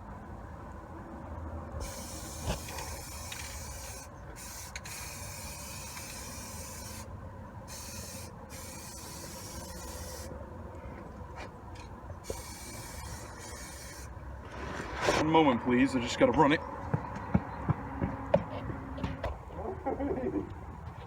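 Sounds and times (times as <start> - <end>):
aerosol spray can hissing: 1.8 - 7.1, 7.7 - 10.3.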